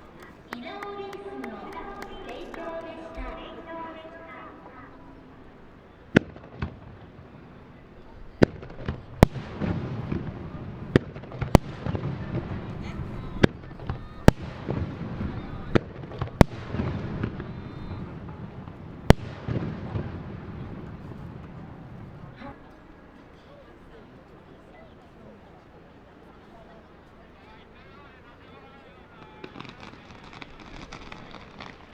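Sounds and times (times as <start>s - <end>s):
fireworks bangs: 0.0s - 22.3s, 29.2s - 31.9s
fireworks crackle and echo: 0.0s - 22.3s, 29.0s - 31.9s.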